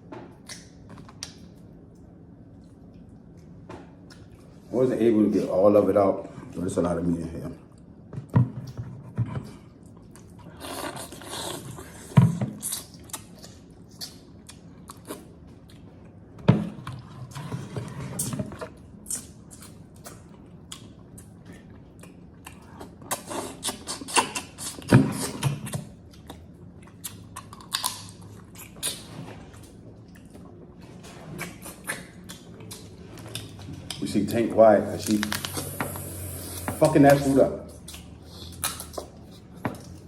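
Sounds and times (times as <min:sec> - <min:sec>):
chewing and mouth sounds: 0:00.3 - 0:04.6, 0:09.6 - 0:16.2, 0:18.2 - 0:34.3, 0:35.0 - 0:40.0.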